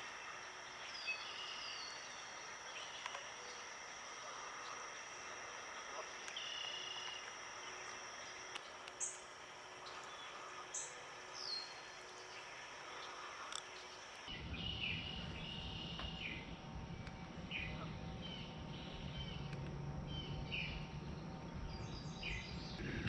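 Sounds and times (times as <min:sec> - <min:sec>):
birds chirping: 0:00.0 - 0:16.5
low steady rumble: 0:00.0 - 0:23.0.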